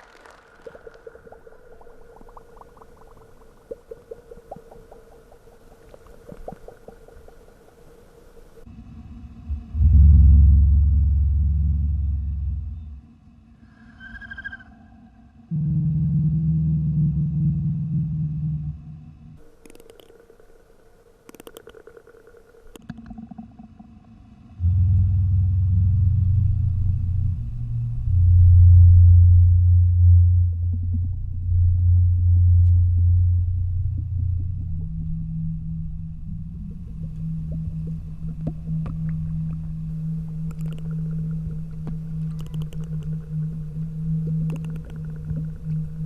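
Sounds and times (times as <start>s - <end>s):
bubbling blips: 0.0s - 7.8s, 37.4s - 46.0s
faint steady tone: 0.0s - 46.0s
loud low vocal hum: 8.7s - 13.0s.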